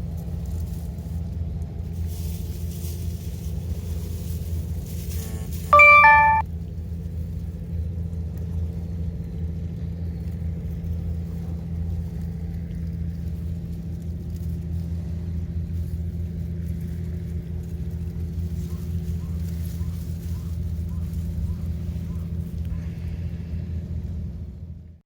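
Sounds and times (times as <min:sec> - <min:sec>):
two-note chime: 0:05.8 - 0:06.4.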